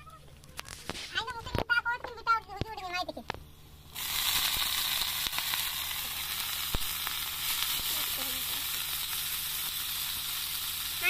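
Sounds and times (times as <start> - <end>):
food sizzling in hot oil: 3.7 - 11.0.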